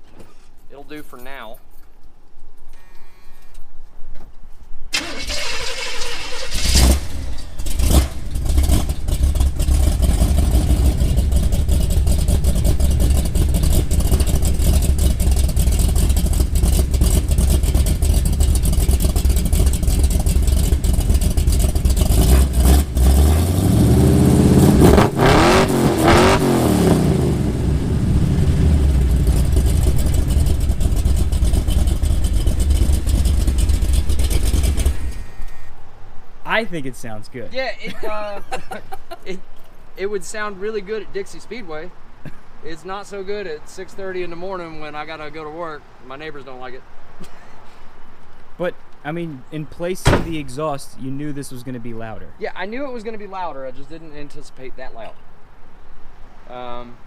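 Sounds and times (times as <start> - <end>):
car engine starting and idling: 4.9 - 35.6, 49.9 - 50.8
car engine revving: 5.0 - 35.2.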